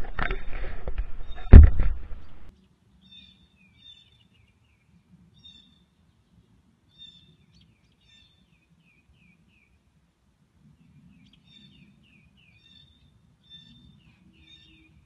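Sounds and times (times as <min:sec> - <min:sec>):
small birds chirping: 0:02.2 - 0:09.8, 0:10.7 - 0:15.0.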